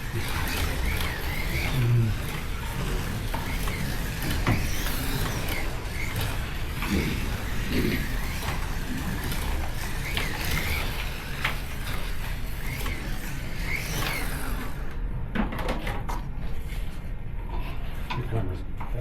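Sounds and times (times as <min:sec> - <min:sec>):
slot car motor whining: 0:00.0 - 0:15.0
wheels rumbling on plastic track: 0:00.0 - 0:16.7.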